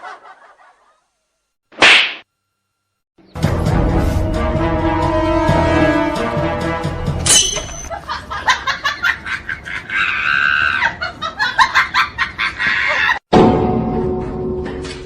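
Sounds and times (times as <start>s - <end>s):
high squeak: 7.3s - 7.9s.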